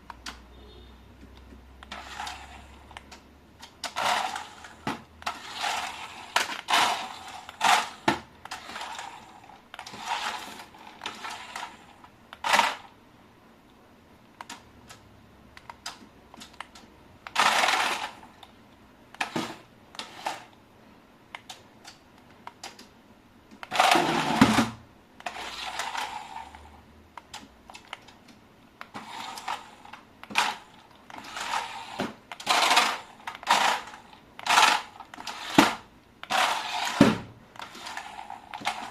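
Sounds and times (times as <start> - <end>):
plastic toys clicking and tapping: 15.6 - 18.6, 21.3 - 22.9, 27.2 - 38.9.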